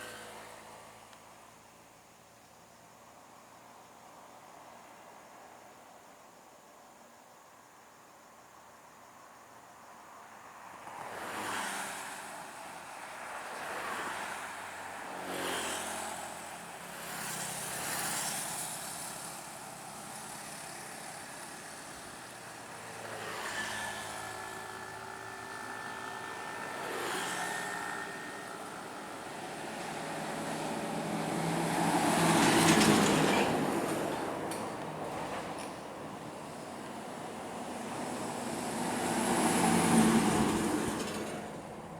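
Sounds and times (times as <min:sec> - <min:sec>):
trucks driving past: 0:00.0 - 0:01.0, 0:13.6 - 0:41.9.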